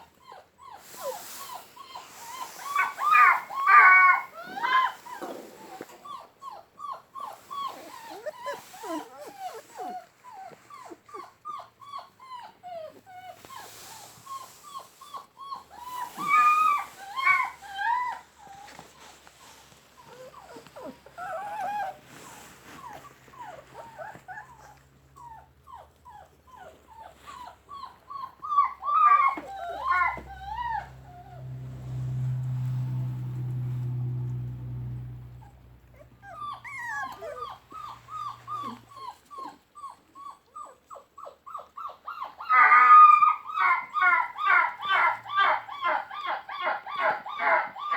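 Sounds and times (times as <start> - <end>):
puppies whimpering: 0.0 - 31.8, 35.4 - 47.9
low steady hum: 16.8 - 39.1.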